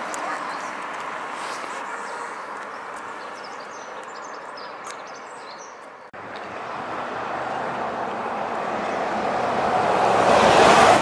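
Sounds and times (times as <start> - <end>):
small birds chirping: 0.0 - 6.2
road traffic hum: 0.0 - 11.0.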